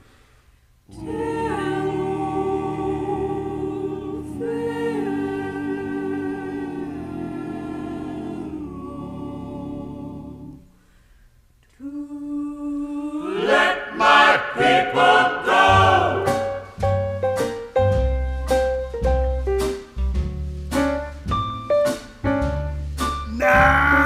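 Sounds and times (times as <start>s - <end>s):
choir singing held chords: 0.9s - 10.8s, 11.8s - 16.8s.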